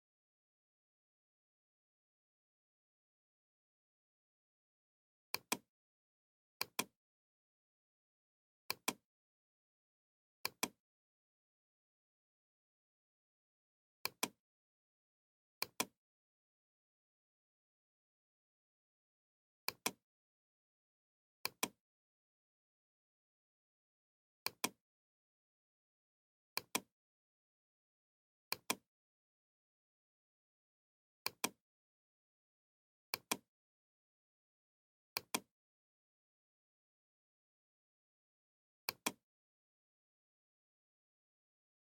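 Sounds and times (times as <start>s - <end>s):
computer mouse double-click: 5.3s - 5.7s, 6.6s - 6.9s, 8.7s - 9.0s, 31.2s - 31.6s, 35.2s - 35.5s, 38.9s - 39.2s.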